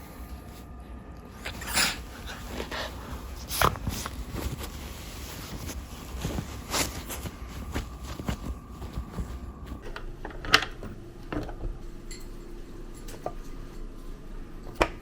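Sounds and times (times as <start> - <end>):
dog sniffing and snorting: 1.4 - 9.8.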